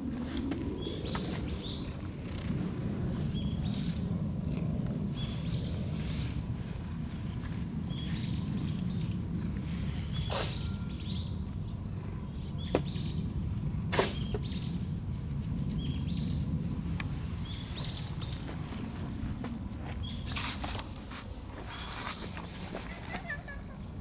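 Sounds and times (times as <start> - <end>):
small bird chirping: 10.1 - 11.4, 17.4 - 18.4.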